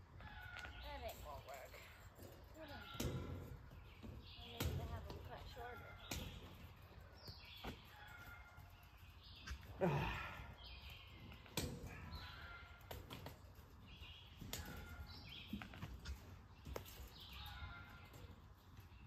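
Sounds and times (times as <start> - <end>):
songbirds singing: 0.0 - 19.0.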